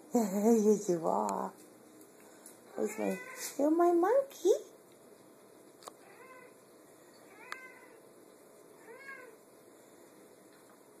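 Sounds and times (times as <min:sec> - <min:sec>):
cat meowing softly: 0:02.7 - 0:03.6, 0:06.0 - 0:06.6, 0:07.2 - 0:08.0, 0:08.8 - 0:09.4.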